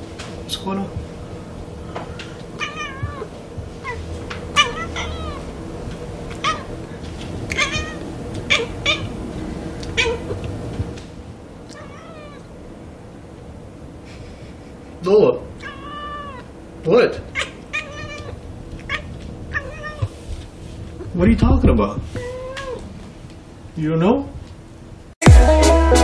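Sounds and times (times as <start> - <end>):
cat meowing and chirping: 2.6 - 5.5, 6.3 - 6.7, 7.5 - 9.2, 9.8 - 10.4, 11.7 - 12.5, 15.6 - 16.5, 17.3 - 20.2, 22.1 - 22.9.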